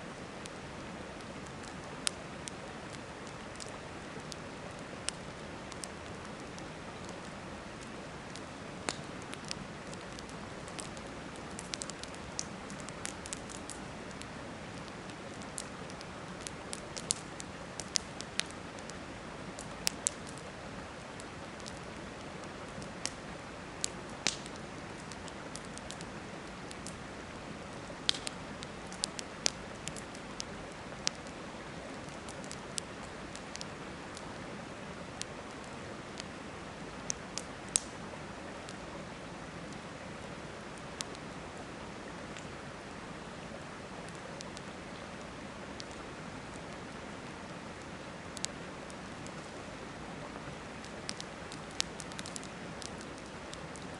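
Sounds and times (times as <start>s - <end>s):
campfire crackling and popping: 0.1s - 34.4s, 35.0s - 38.8s, 39.5s - 42.6s, 44.0s - 53.9s.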